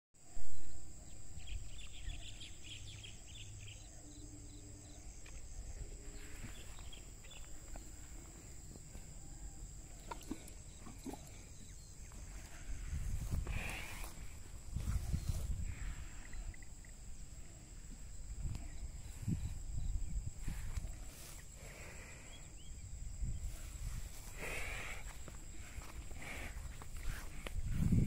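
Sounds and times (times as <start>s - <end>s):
small birds chirping: 1.0s - 17.5s.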